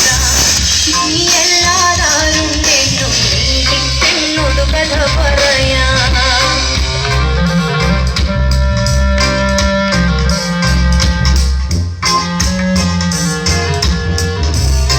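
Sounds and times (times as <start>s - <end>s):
instrumental guitar bass and drums: 0.0s - 14.9s.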